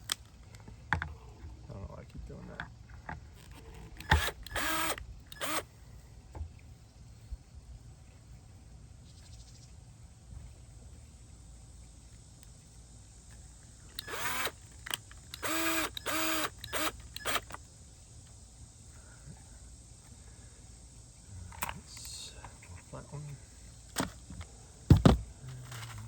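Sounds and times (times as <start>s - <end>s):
cordless screw gun driving screws: 3.4s - 5.7s, 13.9s - 17.6s.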